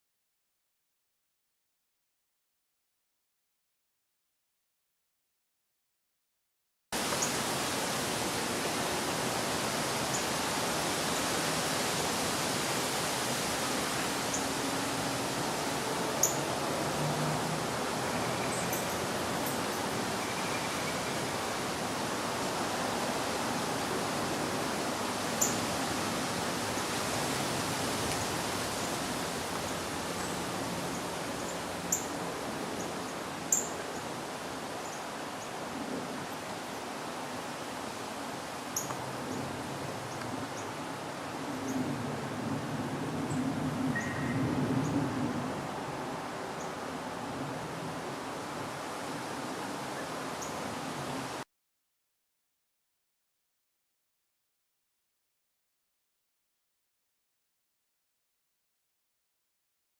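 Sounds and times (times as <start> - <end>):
steady rushing hiss: 7.0 - 41.6.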